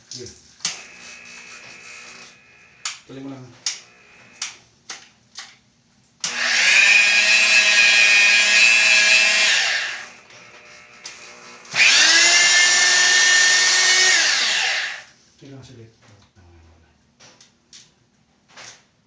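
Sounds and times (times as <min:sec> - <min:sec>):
power tool motor whine: 0:00.7 - 0:03.1, 0:03.7 - 0:04.5, 0:06.2 - 0:15.1.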